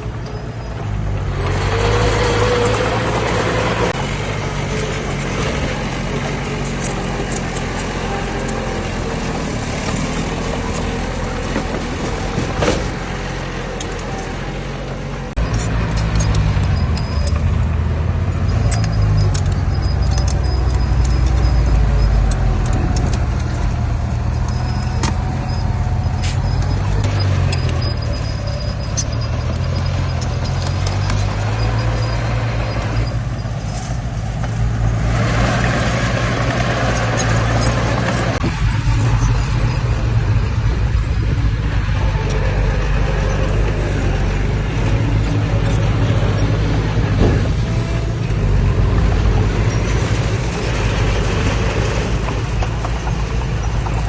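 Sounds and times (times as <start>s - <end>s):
heavy diesel engine droning: 0.0s - 54.0s
rushing noise: 15.3s - 54.0s.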